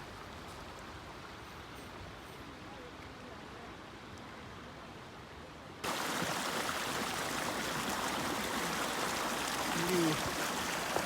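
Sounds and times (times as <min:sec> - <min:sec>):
stream water rushing over rocks: 0:05.8 - 0:11.0.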